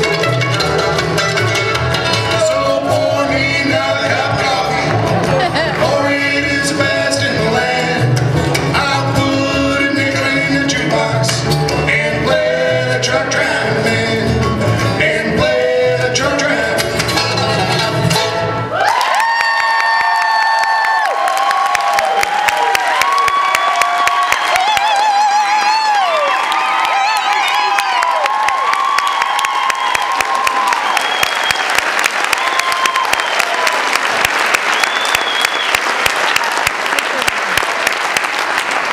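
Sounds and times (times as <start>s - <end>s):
bluegrass band playing: 0.0s - 18.8s
audience applauding: 4.5s - 6.1s, 18.7s - 38.9s.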